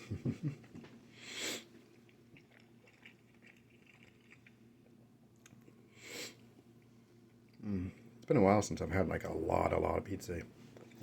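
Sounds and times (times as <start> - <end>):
faint chewing with mouth clicks: 1.6 - 5.9.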